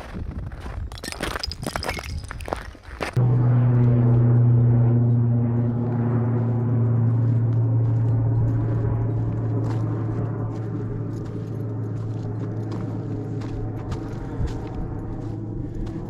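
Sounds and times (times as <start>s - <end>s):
deep ringing tone: 3.2s - 15.6s.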